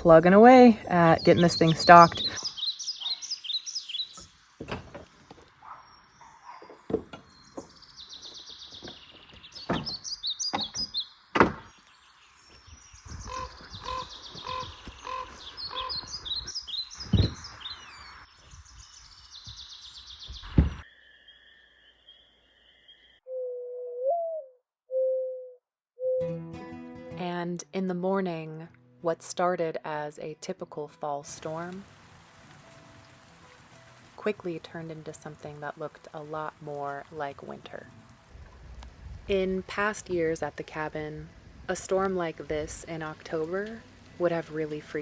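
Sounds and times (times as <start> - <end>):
small songbirds chirping: 1.0 - 23.2.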